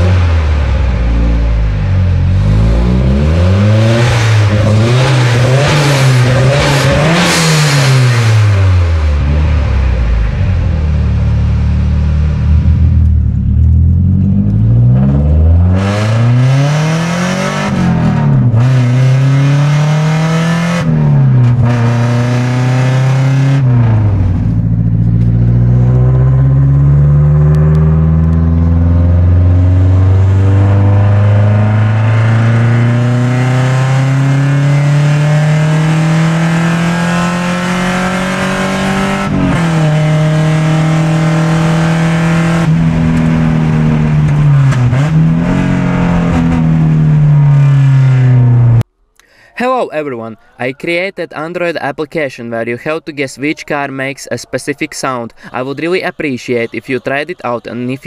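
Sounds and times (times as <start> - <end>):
car engine accelerating through gears: 0.0 - 48.9.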